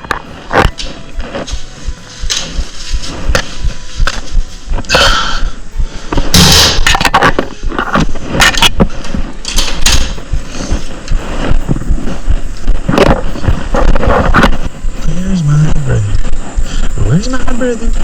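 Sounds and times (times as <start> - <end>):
rustling crackling and knocking: 0.0 - 5.1, 5.7 - 18.0.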